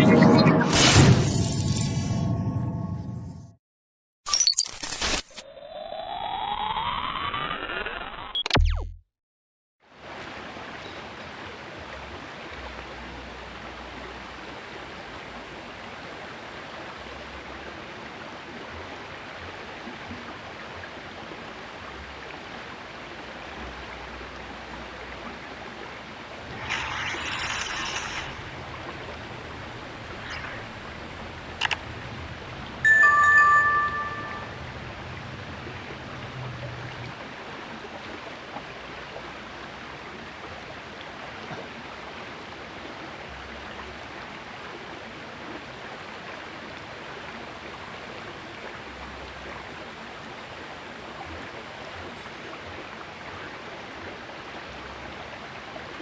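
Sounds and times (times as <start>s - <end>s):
sharp click: 31.6s - 31.8s.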